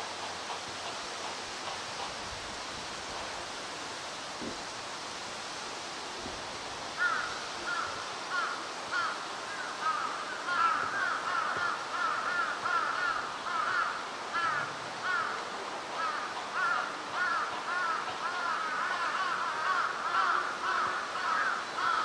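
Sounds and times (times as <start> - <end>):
steady outdoor hiss: 0.0 - 22.0
birds calling: 7.0 - 15.4, 16.0 - 22.0.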